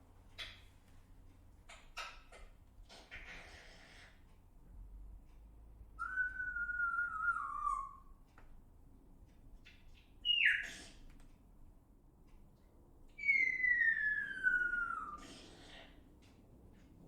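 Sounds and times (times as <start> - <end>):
bird whistling: 6.0 - 8.1, 10.2 - 10.7, 13.2 - 15.3.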